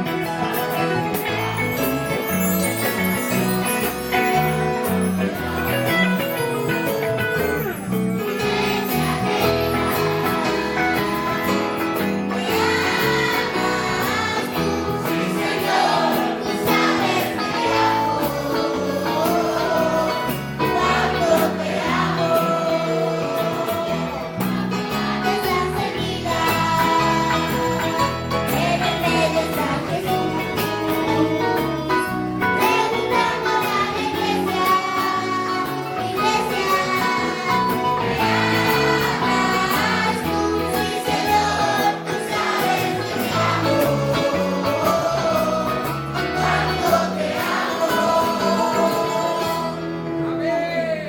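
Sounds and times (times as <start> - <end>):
percussion beat: 0.0 - 17.4
instrumental accompaniment: 0.0 - 50.5
children's choir singing a hymn: 8.4 - 49.9.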